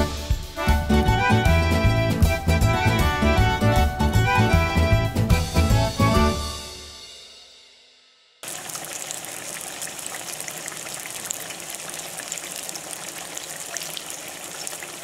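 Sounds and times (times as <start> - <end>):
eggplant frying sizzle: 8.4 - 15.0.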